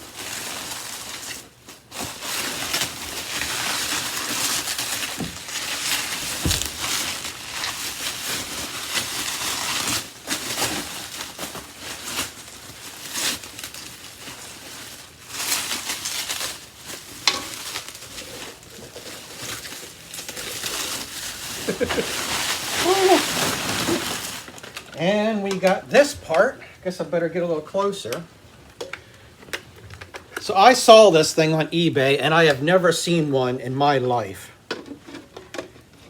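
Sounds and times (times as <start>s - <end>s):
packing material rustling: 0.0s - 26.1s.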